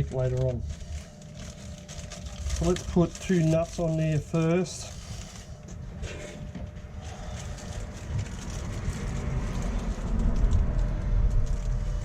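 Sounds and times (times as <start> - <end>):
vehicle passing with deep rumble: 7.9 - 12.0.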